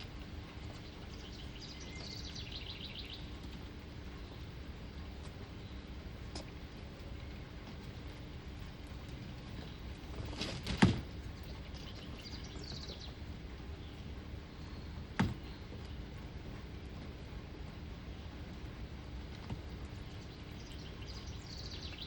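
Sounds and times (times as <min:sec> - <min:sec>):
high bird twitter: 0:00.8 - 0:03.4, 0:11.4 - 0:13.2, 0:20.2 - 0:22.0
sharp knocks: 0:15.2 - 0:15.5.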